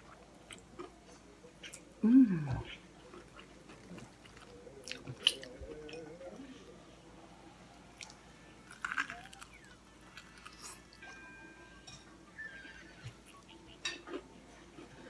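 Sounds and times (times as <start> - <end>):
person chewing crispy food: 0.1 - 1.0, 1.6 - 6.0, 7.9 - 11.0
crisp crunches: 8.0 - 10.7.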